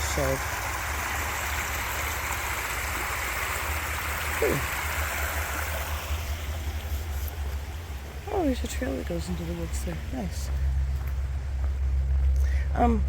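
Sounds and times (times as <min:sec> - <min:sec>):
creek water rushing: 0:00.0 - 0:10.3.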